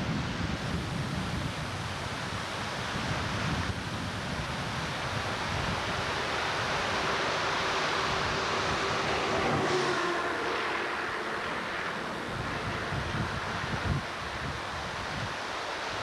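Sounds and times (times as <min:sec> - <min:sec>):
floodwater rushing: 0:04.2 - 0:16.0.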